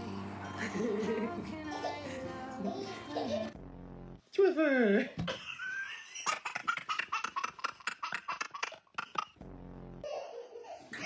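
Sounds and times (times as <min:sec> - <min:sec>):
person laughing: 0:00.6 - 0:03.6.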